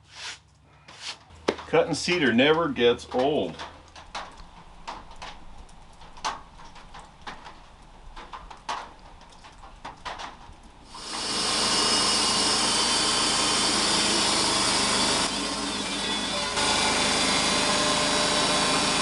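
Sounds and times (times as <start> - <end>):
band saw cutting log: 10.9 - 19.0
sawmill running hum: 10.9 - 19.0.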